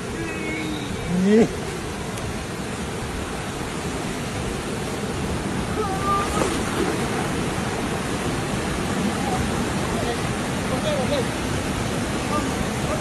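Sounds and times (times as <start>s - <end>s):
faint high call: 0.0s - 1.6s
waterfall rushing: 0.0s - 13.0s.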